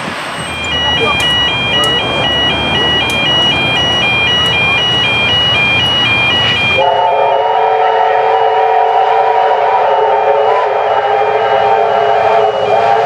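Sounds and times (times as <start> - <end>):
rumbling railway noise: 0.0 - 13.0
two-note electronic warning tone: 0.4 - 7.4
train whistle chord: 0.6 - 13.0.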